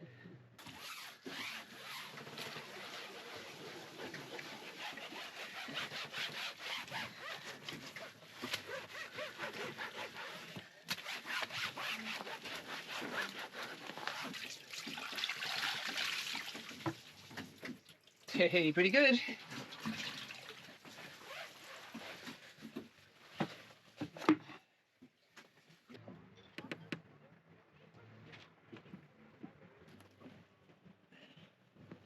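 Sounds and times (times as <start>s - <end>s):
brush scrubbing deck: 0.6s - 14.5s.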